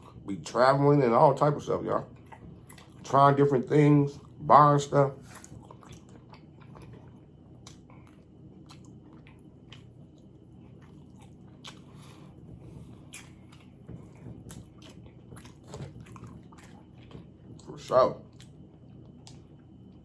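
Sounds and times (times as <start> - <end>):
person chewing sandwich: 2.1 - 3.1, 5.2 - 20.0.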